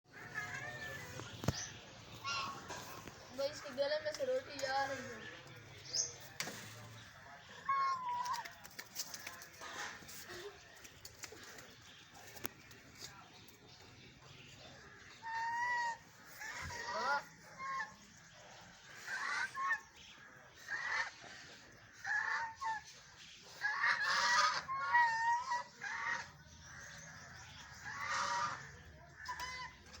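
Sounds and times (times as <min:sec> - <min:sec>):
ducks quacking: 0:23.5 - 0:30.0.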